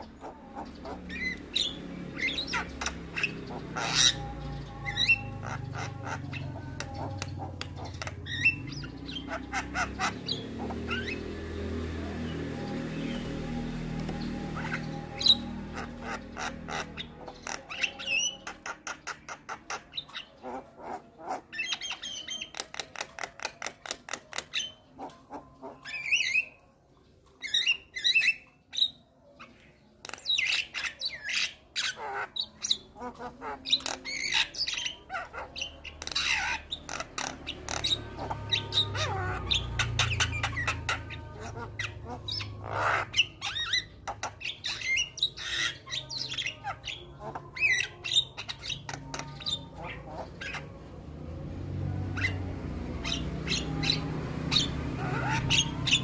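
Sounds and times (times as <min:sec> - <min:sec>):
bird calling with clicks and squawks: 0:14.0 - 0:50.9.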